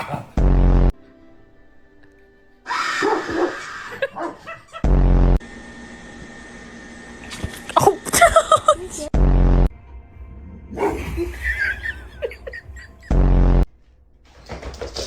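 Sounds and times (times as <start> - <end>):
dog barking and yipping: 4.0 - 4.7.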